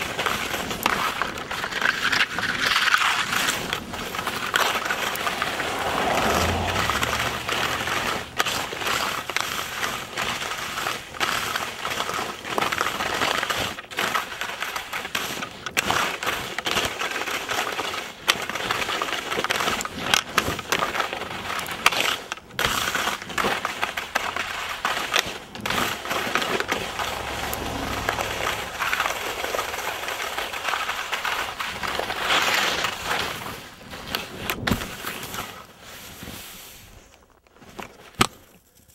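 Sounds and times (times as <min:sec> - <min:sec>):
skis scraping over crusty snow: 0:00.0 - 0:38.9
low rumble: 0:04.2 - 0:09.2, 0:25.8 - 0:31.6.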